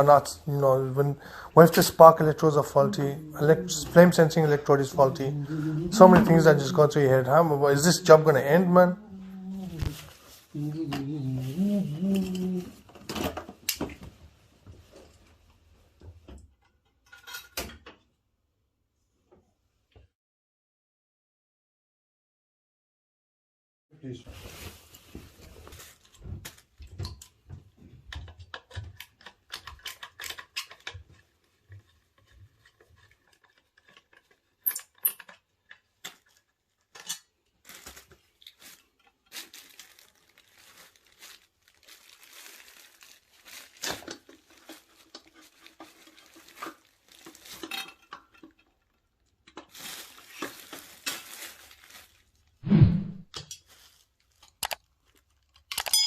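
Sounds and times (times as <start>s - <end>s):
rustling and scraping: 1.6s - 15.5s, 24.3s - 35.3s, 37.0s - 48.8s, 49.6s - 54.6s
small metallic clicks and clinks: 32.7s - 35.8s, 55.5s - 56.0s.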